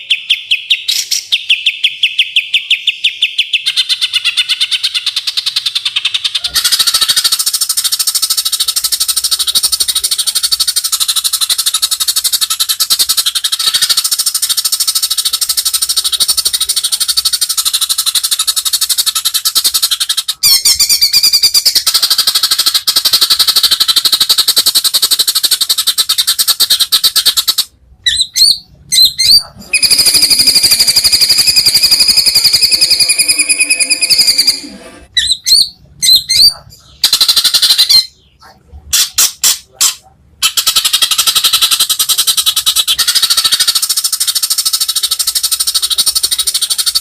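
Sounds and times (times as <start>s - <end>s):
bird singing rattling trill: 0.0s - 34.6s.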